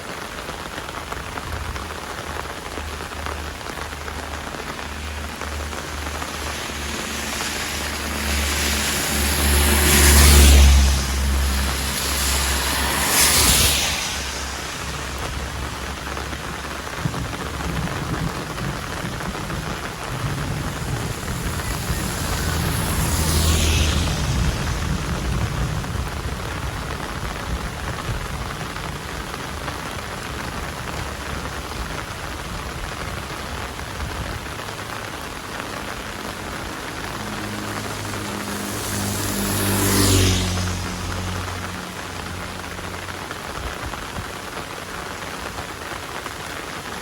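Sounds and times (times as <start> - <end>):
heavy rain pouring: 0.0 - 47.0
low rumble: 3.5 - 34.5.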